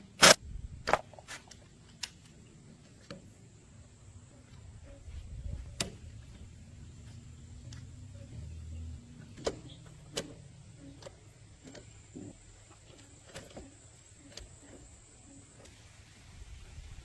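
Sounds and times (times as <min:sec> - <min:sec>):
faint low hum: 0:00.0 - 0:17.0
light clicks and knocks: 0:04.4 - 0:15.8.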